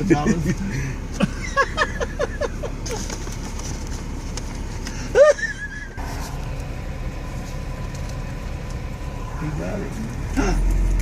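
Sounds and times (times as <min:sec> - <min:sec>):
car idling: 0:00.0 - 0:11.0
person laughing: 0:00.2 - 0:03.0, 0:05.0 - 0:06.0.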